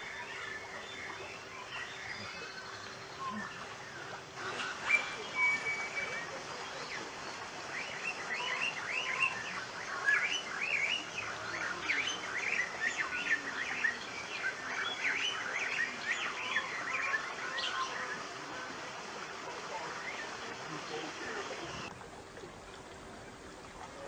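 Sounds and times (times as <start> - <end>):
many birds chirping: 0.0 - 21.9.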